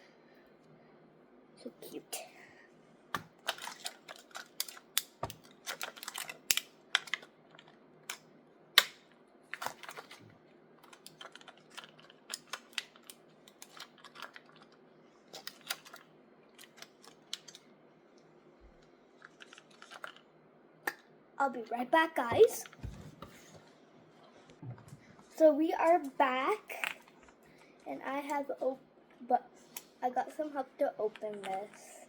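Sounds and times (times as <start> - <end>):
plastic packaging clicks and taps: 3.2 - 8.2, 8.8 - 10.2.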